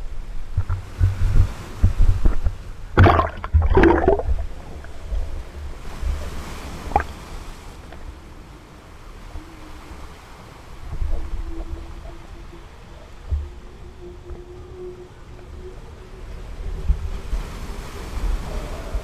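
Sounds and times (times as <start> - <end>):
low microphone rumble: 0.0 - 7.2
water sloshing and splashing: 0.0 - 8.6.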